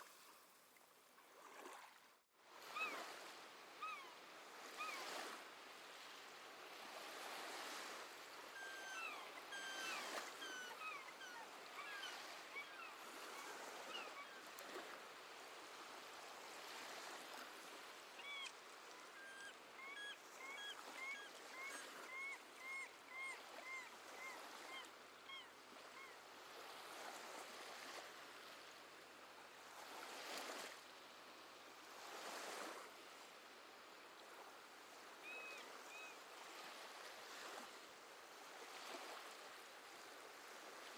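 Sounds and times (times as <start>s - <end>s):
seabirds chirping: 8.5s - 14.4s.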